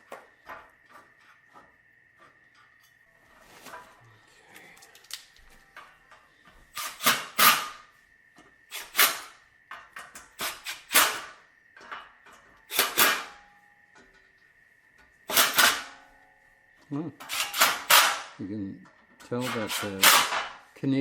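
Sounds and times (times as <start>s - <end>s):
metallic scrapes and knocks: 8.7s - 13.4s, 19.2s - 20.6s.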